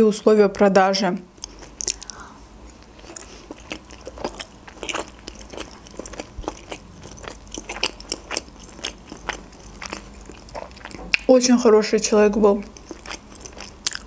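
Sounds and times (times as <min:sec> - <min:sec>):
person chewing: 0:01.4 - 0:11.3, 0:12.6 - 0:14.0.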